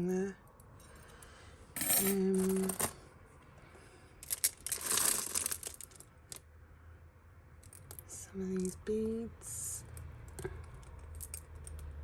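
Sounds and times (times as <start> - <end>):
plastic bag crinkling: 4.2 - 6.4.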